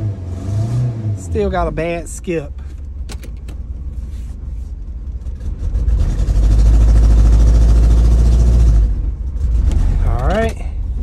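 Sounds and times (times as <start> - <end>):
misfiring car engine revving: 5.3 - 10.3.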